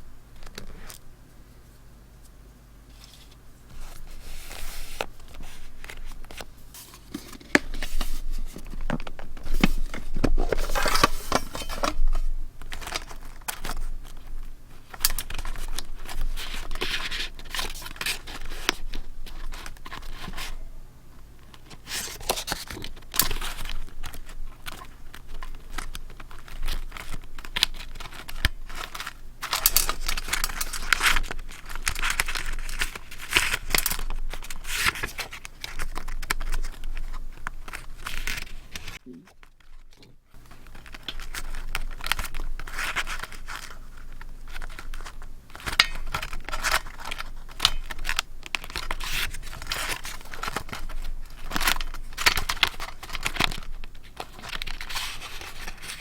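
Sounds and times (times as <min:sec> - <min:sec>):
paper tearing and crinkling: 0:21.8 - 0:39.0.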